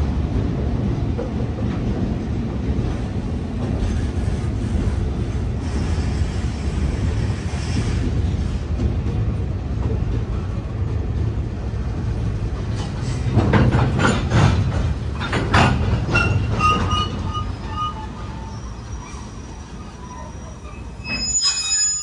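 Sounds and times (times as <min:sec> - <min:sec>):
train wheel clacks: 0:00.0 - 0:19.8
train rumble: 0:00.0 - 0:22.0
wheel squeals: 0:16.0 - 0:22.0.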